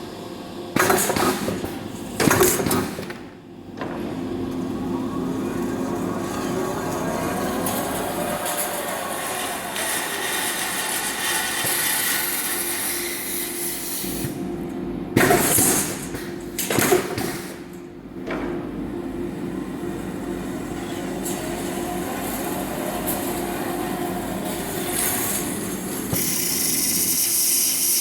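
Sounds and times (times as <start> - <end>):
bandsaw running: 5.3 - 14.1, 20.1 - 28.0.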